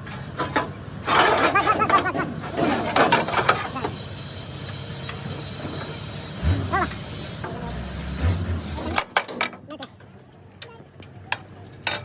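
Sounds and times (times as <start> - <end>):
people talking: 1.5 - 4.0, 6.5 - 7.8.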